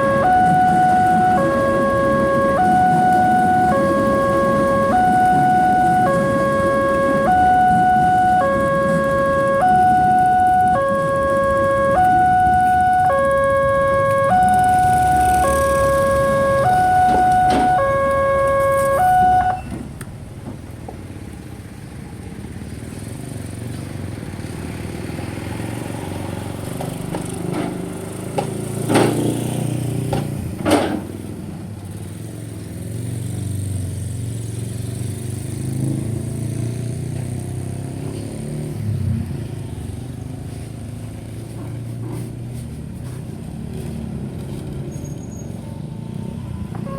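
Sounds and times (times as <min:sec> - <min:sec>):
level crossing two-tone chime: 0:00.0 - 0:19.7
road traffic: 0:00.0 - 0:46.9.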